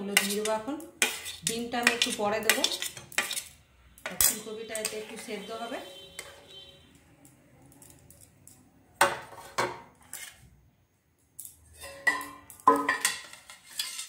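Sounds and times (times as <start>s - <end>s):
metal utensils clinking: 0.0s - 5.3s, 11.4s - 14.0s
metal utensils clattering: 11.4s - 14.0s.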